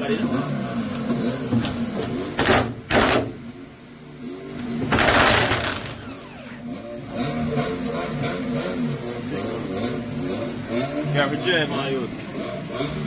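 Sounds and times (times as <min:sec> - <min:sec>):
power tool rattling: 0:04.8 - 0:06.7.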